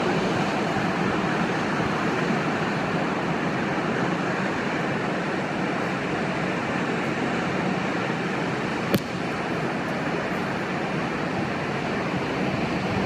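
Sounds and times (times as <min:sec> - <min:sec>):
sea surf: 0:00.0 - 0:13.0.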